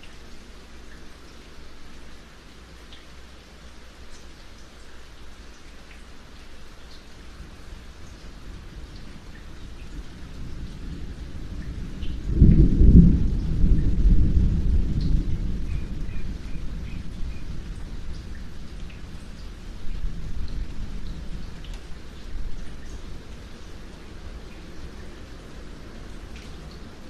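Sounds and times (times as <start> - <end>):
steady rain: 0.0 - 27.0
thunder rumbling: 8.5 - 23.2.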